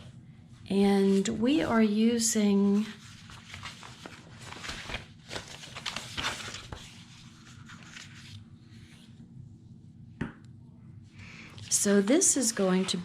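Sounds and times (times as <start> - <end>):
paper rustling: 2.7 - 8.4, 11.6 - 13.0.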